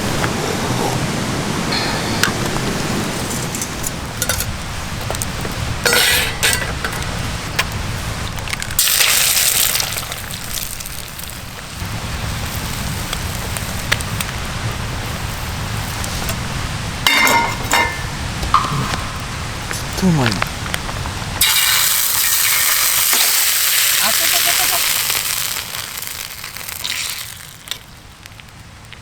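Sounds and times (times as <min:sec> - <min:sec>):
campfire crackling: 0:00.0 - 0:29.0
tableware clinking: 0:05.8 - 0:07.0, 0:17.1 - 0:19.2.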